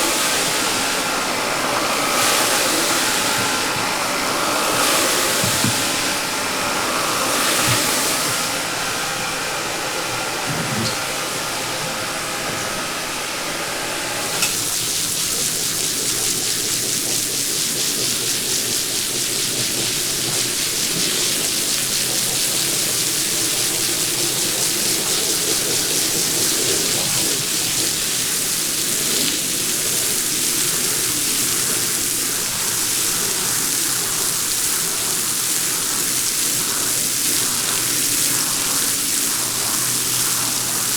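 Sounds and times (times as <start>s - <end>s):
water spraying: 0.0s - 40.9s.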